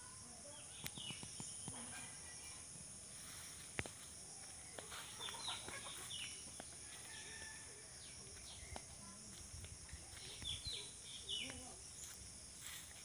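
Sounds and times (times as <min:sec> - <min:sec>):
high insect drone: 0:00.0 - 0:13.0
birds chirping: 0:00.2 - 0:02.7, 0:04.4 - 0:12.8.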